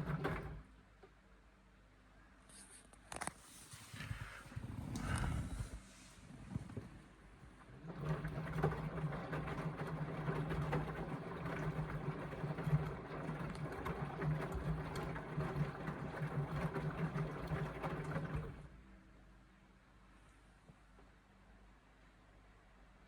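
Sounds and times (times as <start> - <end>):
laundry and water sloshing: 0.0 - 0.6, 7.6 - 18.8
washing machine motor humming: 0.0 - 0.7, 7.4 - 18.8.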